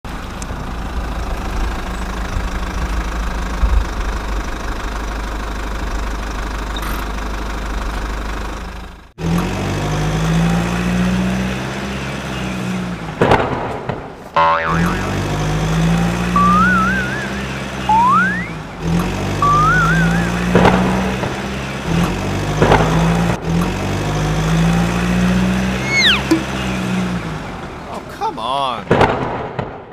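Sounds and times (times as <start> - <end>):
engine running: 0.1 - 28.1
steady engine drone: 14.3 - 28.3
wavering siren-like tone: 14.4 - 15.6, 16.3 - 18.6, 19.4 - 20.7, 25.8 - 26.7.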